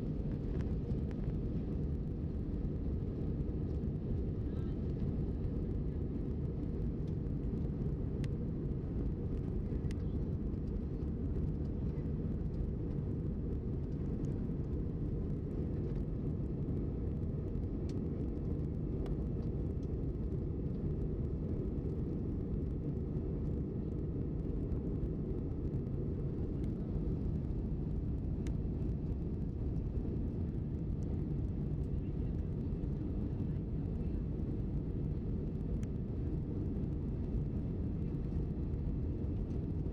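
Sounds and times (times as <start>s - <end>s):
airliner cabin drone: 0.0s - 39.9s.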